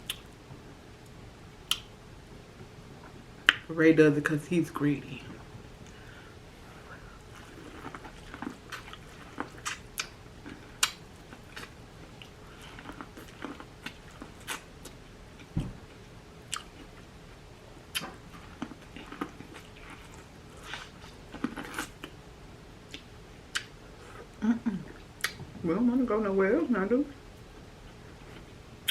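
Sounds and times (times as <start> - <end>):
person chewing and biting: 7.2 - 15.6.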